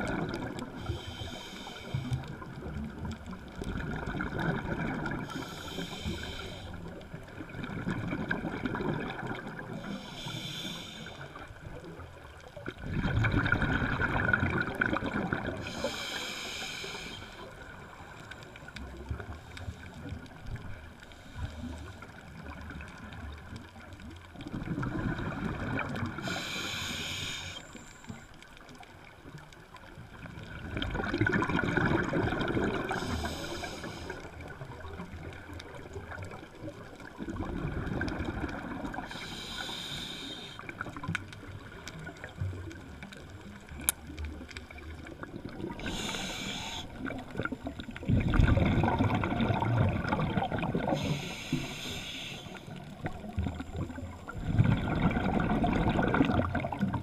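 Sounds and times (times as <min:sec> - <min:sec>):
rumble of exhaled bubbles: 0:00.0 - 0:10.3, 0:11.3 - 0:16.3, 0:17.3 - 0:26.8, 0:27.7 - 0:39.4, 0:40.6 - 0:57.0
regulator hiss on inhale: 0:00.8 - 0:02.4, 0:05.2 - 0:07.0, 0:09.8 - 0:11.6, 0:15.6 - 0:20.1, 0:21.0 - 0:22.2, 0:26.1 - 0:28.4, 0:32.9 - 0:34.6, 0:38.9 - 0:41.1, 0:45.7 - 0:47.6, 0:50.8 - 0:53.0.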